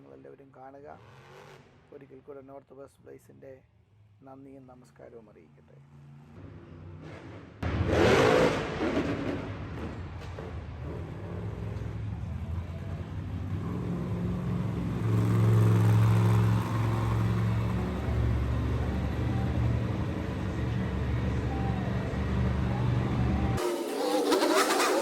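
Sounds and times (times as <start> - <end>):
truck engine deep drone: 5.4 - 25.0.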